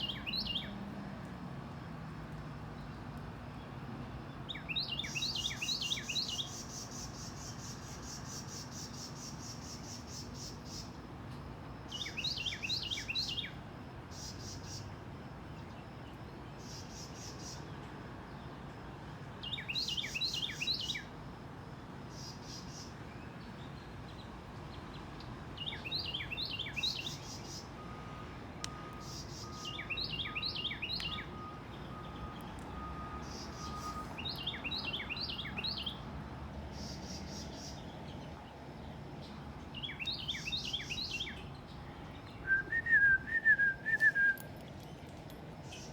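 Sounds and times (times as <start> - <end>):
songbird singing: 0.0 - 21.2, 22.0 - 45.9
insects trilling: 4.3 - 17.8, 25.6 - 36.1.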